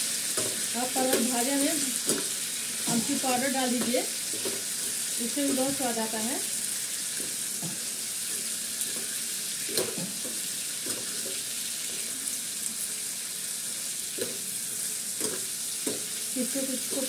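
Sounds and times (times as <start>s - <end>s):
vegetables sizzling in hot oil: 0.0s - 17.0s
spatula scraping a pan: 0.1s - 6.0s.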